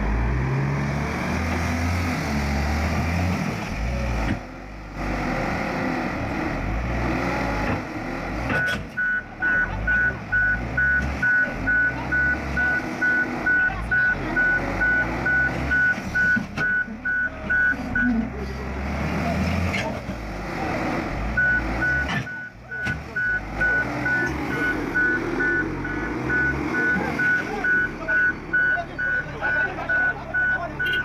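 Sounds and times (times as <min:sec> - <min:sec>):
heavy vehicle engine running: 0:00.0 - 0:31.0
reversing alarm beeping: 0:08.5 - 0:18.1, 0:21.4 - 0:31.0.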